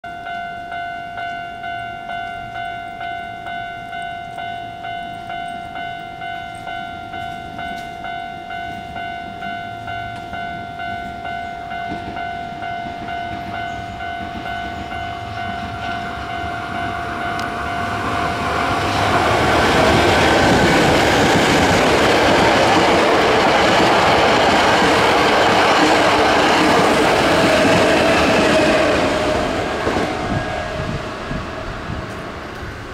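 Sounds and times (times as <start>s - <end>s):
railway crossing bell ringing: 0.0s - 32.9s
train wheels rushing on rail: 8.7s - 32.9s.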